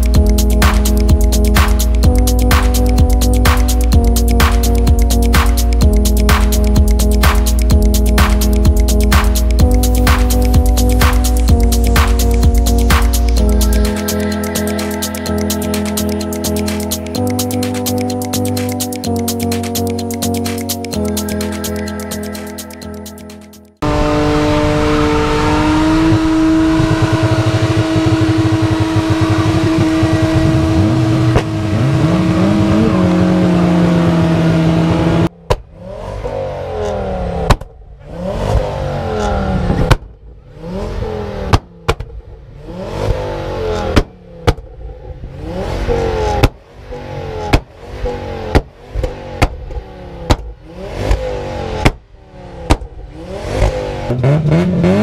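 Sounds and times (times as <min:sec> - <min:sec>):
car engine revving: 0:00.0 - 0:21.3, 0:23.8 - 0:55.0
exhaust pops and bangs: 0:39.7 - 0:40.2, 0:41.5 - 0:42.2, 0:46.4 - 0:46.6, 0:48.5 - 0:51.2, 0:52.7 - 0:52.9.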